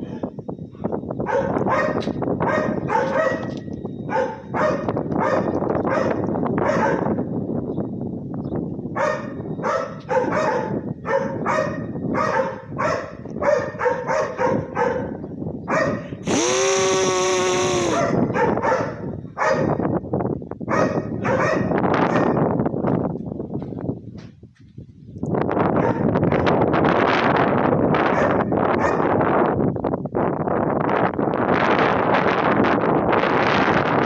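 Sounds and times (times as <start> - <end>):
dog barking: 1.2 - 7.2, 9.0 - 16.2, 18.0 - 19.8, 20.7 - 22.4, 25.8 - 26.1, 28.1 - 29.1.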